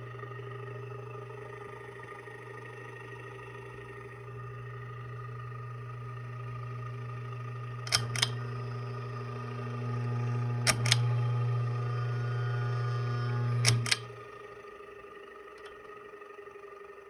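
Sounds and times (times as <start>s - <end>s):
ceiling fan motor humming: 0.0s - 17.0s
sharp clicks: 7.9s - 8.4s, 10.7s - 11.1s, 13.6s - 14.2s.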